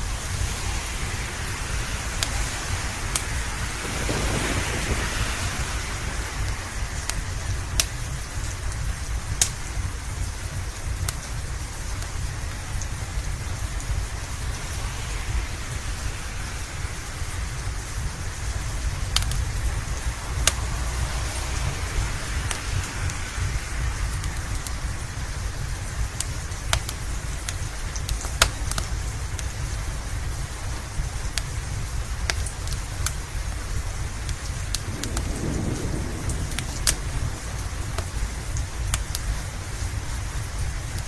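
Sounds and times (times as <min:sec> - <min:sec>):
steady rain: 0:00.0 - 0:41.0
deep low rumble: 0:02.4 - 0:11.0, 0:33.9 - 0:40.6
wood fire popping: 0:03.1 - 0:14.6, 0:16.8 - 0:21.5, 0:22.2 - 0:41.0.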